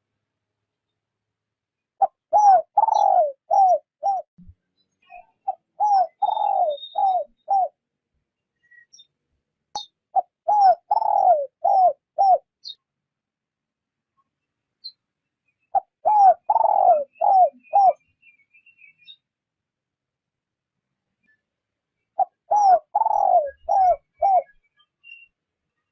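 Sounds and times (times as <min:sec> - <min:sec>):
dove cooing: 0:02.0 - 0:04.3, 0:05.5 - 0:07.8, 0:10.1 - 0:12.5, 0:15.7 - 0:18.0, 0:22.2 - 0:24.6.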